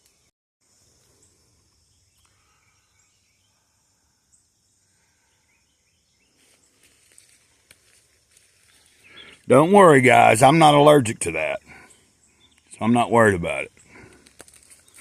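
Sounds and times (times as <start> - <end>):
high insect hiss: 0.0 - 9.6.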